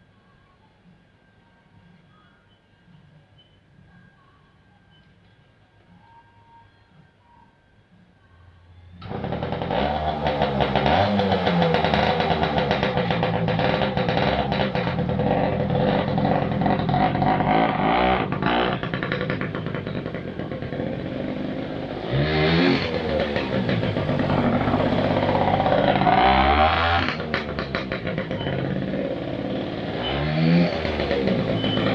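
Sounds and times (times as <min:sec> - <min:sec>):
dirt bike engine revving: 0:09.0 - 0:31.9.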